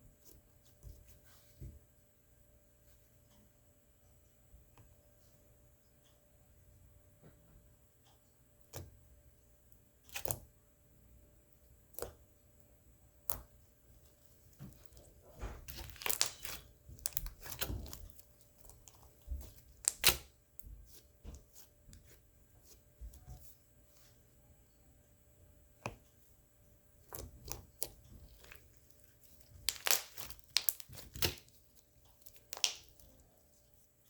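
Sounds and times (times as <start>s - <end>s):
slime squishing and popping: 14.5s - 21.4s, 27.0s - 33.2s.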